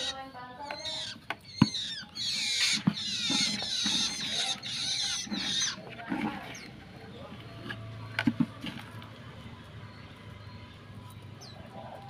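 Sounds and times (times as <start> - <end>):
bird squeaky chattering calls: 0.0 - 5.8.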